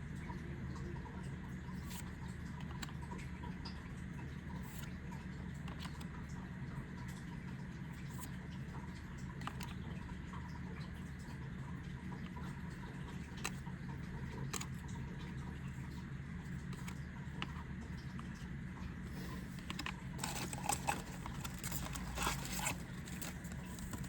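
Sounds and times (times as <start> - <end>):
cards clicking and tapping: 19.6 - 24.0.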